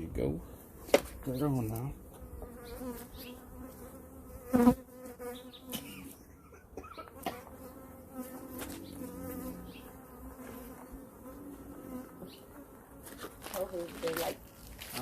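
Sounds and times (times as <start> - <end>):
bees buzzing: 0.5 - 14.8
bee buzzing close by: 0.6 - 6.3, 7.0 - 14.6
light knocks on hive parts: 0.9 - 1.3.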